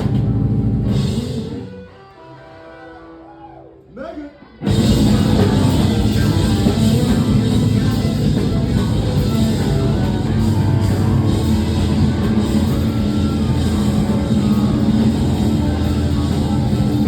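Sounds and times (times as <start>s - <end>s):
live rock band playing: 0.0s - 3.4s, 4.6s - 17.0s.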